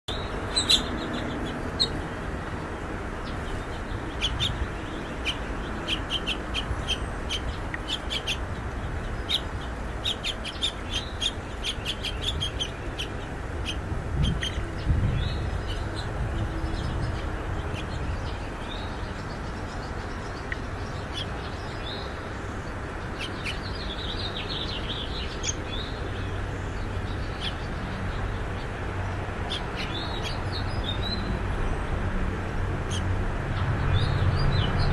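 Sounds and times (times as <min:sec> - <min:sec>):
nestlings chirping: 0:00.1 - 0:02.1, 0:03.2 - 0:22.2.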